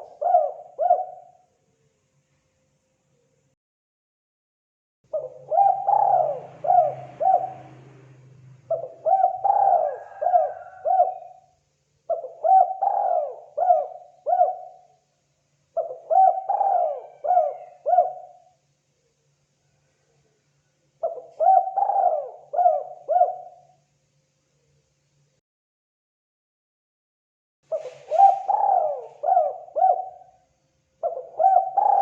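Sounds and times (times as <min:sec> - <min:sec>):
dove cooing: 0:00.0 - 0:01.4, 0:05.1 - 0:11.5, 0:12.1 - 0:15.0, 0:15.8 - 0:18.6, 0:21.0 - 0:23.8, 0:27.7 - 0:30.4, 0:31.0 - 0:32.0.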